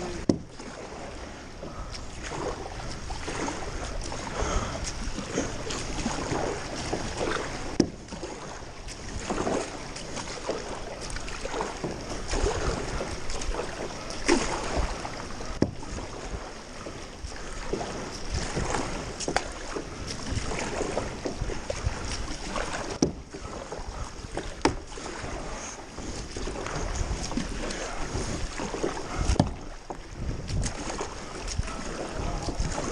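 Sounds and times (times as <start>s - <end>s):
paddle splashing through water: 0.0s - 32.9s.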